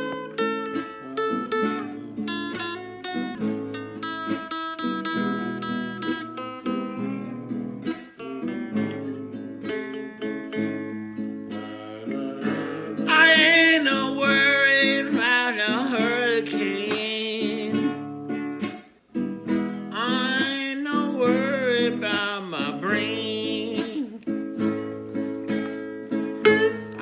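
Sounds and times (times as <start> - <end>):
strummed acoustic guitar: 0.0 - 27.0
man singing: 11.5 - 18.2, 19.8 - 24.8.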